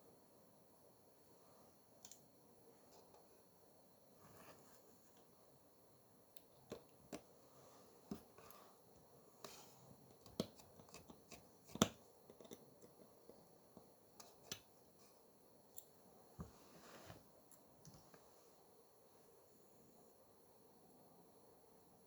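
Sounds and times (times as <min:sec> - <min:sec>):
small tools clicking and tapping: 0:10.2 - 0:13.1.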